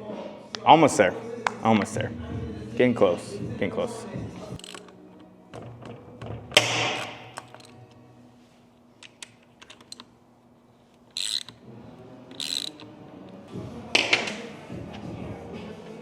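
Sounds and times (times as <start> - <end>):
ratchet bursts: 4.6 - 4.9, 11.1 - 11.6, 12.3 - 12.9
metal tool clicks: 4.6 - 5.0, 6.5 - 7.8, 9.0 - 10.1, 11.1 - 11.6, 12.3 - 12.9.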